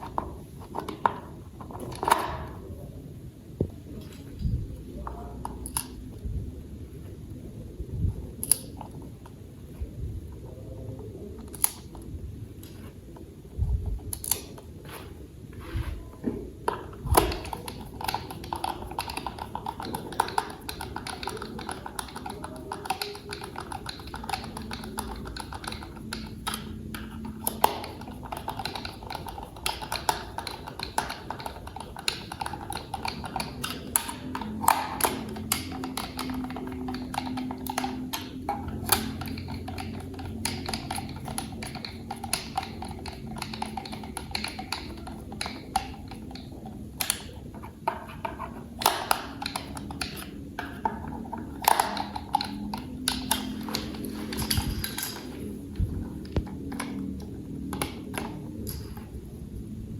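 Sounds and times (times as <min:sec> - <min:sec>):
plastic toy parts clicking: 0:08.4 - 0:08.8, 0:11.5 - 0:11.9, 0:14.1 - 0:14.6, 0:16.7 - 0:59.1.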